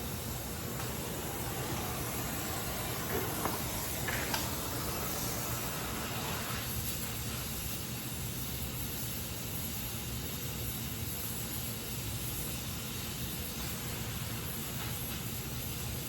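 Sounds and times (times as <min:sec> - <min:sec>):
torch flame pops: 0:00.0 - 0:07.0
welding torch flame hissing: 0:00.0 - 0:16.0.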